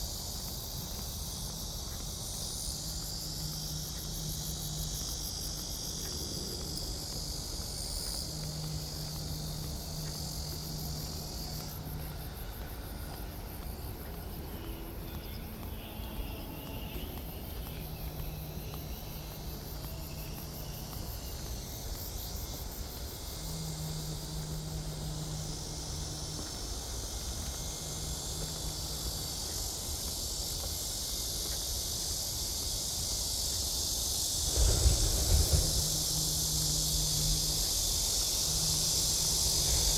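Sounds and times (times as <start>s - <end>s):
insects chirring: 0.0s - 39.9s
low rumble: 34.4s - 39.9s.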